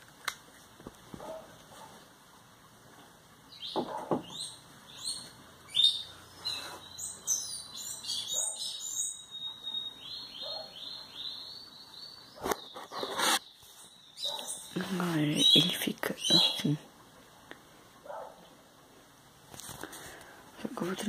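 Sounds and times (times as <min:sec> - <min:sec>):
songbird singing: 0:03.4 - 0:18.6.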